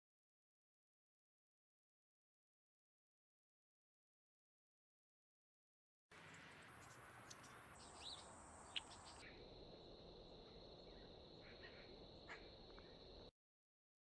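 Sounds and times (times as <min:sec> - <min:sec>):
short bird chirps: 0:06.2 - 0:09.4
high insect drone: 0:06.2 - 0:13.3.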